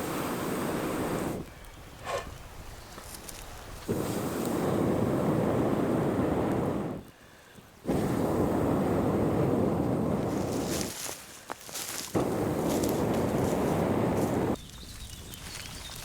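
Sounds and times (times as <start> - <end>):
strong wind buffeting microphone: 3.5 - 7.1, 7.9 - 11.0, 12.1 - 16.0.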